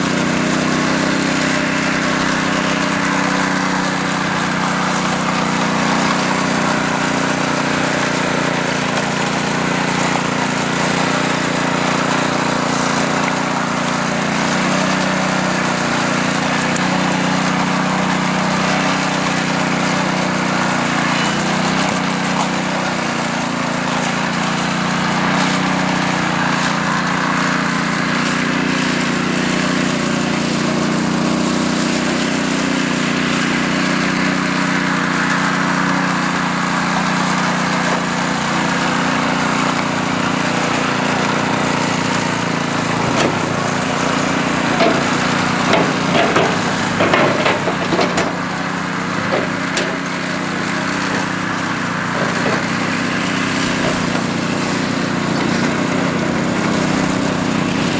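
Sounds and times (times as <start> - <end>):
small engine running: 0.0 - 57.9
sharp knocks and clatters: 40.1 - 56.1.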